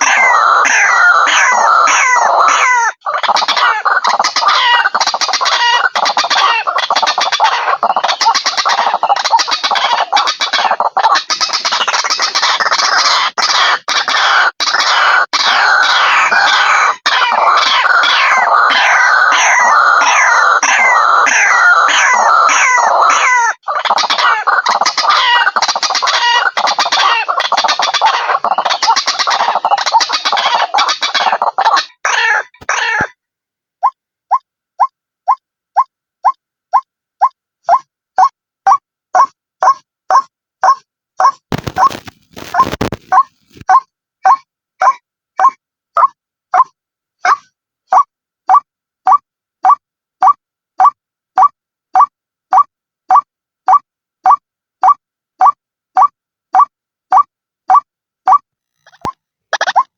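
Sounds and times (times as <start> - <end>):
waterhens calling rapidly: 0.0 - 33.1, 41.2 - 43.8.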